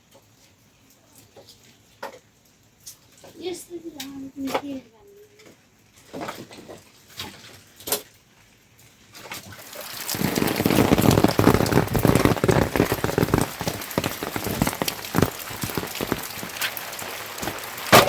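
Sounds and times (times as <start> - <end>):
heavy rain on a surface: 8.6 - 18.0.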